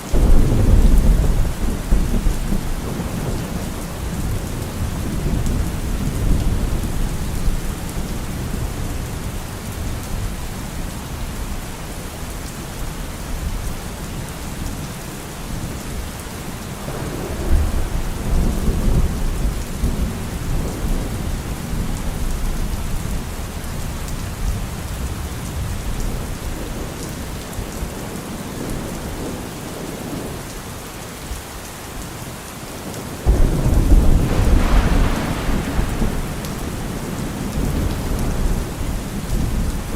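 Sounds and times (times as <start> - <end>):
heavy rain: 0.0 - 39.9
sharp thunderclap: 0.1 - 7.6, 16.8 - 22.3, 33.2 - 39.9
rolling thunder: 0.1 - 10.8, 16.7 - 23.6, 32.8 - 39.9.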